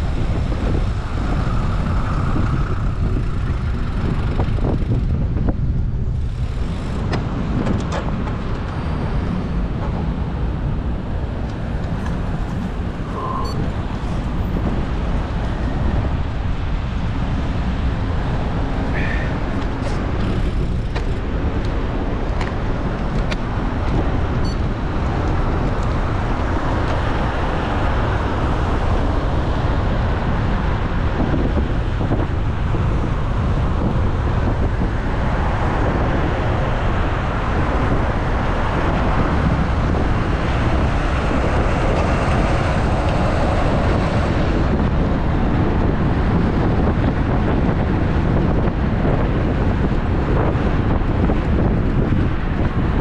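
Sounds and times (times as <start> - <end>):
road traffic noise: 0.0 - 53.0
wind rushing over microphone: 0.0 - 53.0.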